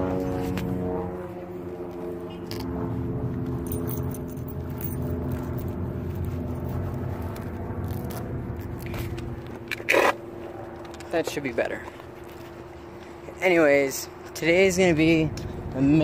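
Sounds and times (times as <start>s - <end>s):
vehicle engine rumbling: 0.0s - 16.0s
phone handling clicks and scrapes: 7.2s - 11.1s.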